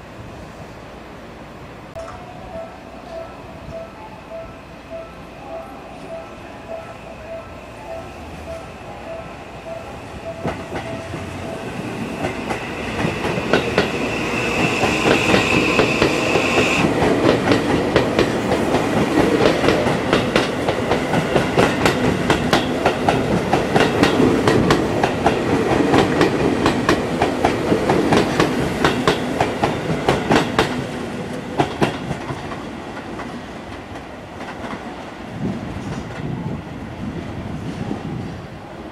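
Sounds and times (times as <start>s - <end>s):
electric train passing: 0.0s - 38.9s.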